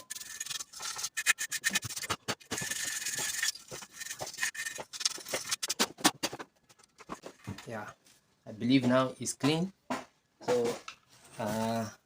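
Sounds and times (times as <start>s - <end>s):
toothbrush scrubbing: 0.0s - 5.6s.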